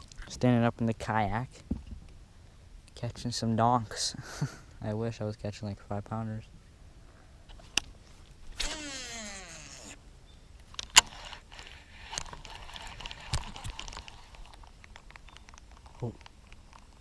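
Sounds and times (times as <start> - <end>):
fishing reel spool whirring: 8.6 - 10.0
reel clicking and rattling: 10.8 - 16.9.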